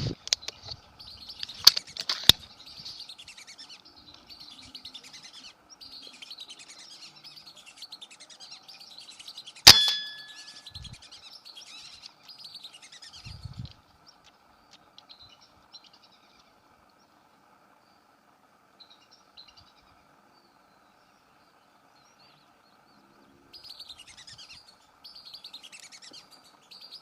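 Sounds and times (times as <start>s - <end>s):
birds chirping: 0.0s - 27.0s
sharp crack with metallic ring: 9.6s - 10.9s.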